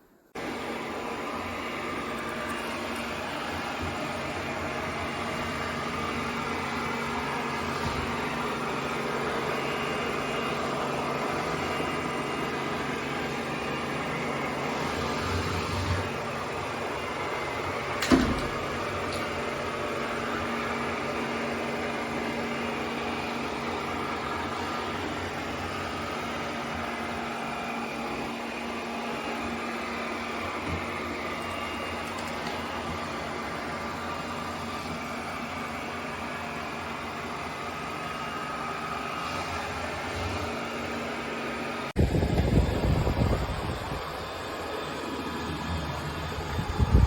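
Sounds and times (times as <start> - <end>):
robot vacuum running: 0.4 - 47.0.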